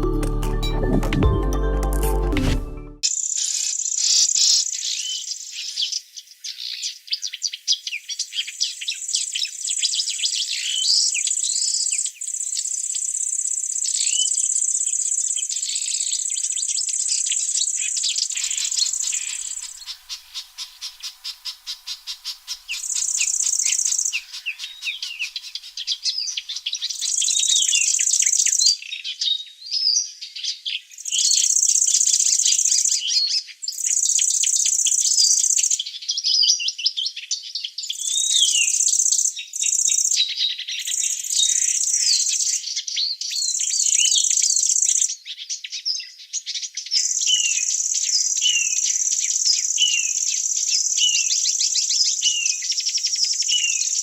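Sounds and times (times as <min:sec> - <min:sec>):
small birds chirping: 0:03.0 - 0:54.0
high-pitched insect buzz: 0:18.3 - 0:25.6.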